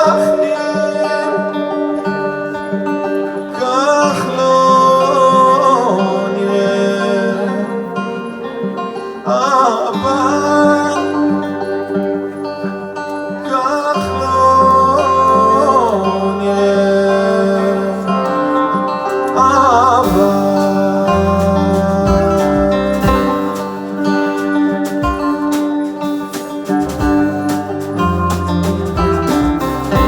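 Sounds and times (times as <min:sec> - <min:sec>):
person singing long notes: 0:00.0 - 0:25.9
acoustic guitar: 0:00.0 - 0:30.0
low bass notes: 0:19.4 - 0:24.2, 0:26.7 - 0:30.0.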